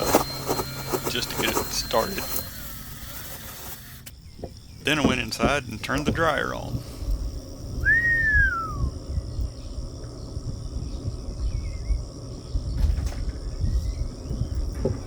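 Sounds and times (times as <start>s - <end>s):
high insect trill: 0.0s - 15.0s
faint bird chirps: 4.2s - 15.0s
low rumble: 6.7s - 15.0s
bird whistle: 7.8s - 9.0s.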